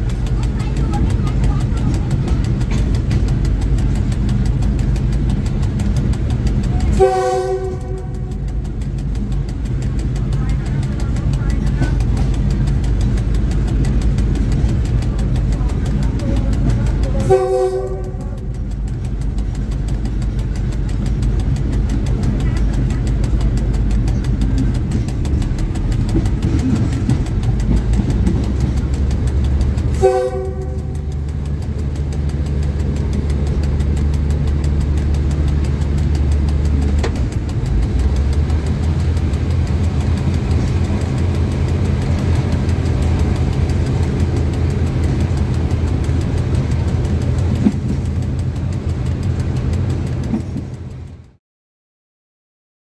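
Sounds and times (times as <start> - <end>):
diesel locomotive engine drone: 0.0 - 51.4
train horn: 6.8 - 8.6, 17.1 - 18.5, 30.0 - 31.1.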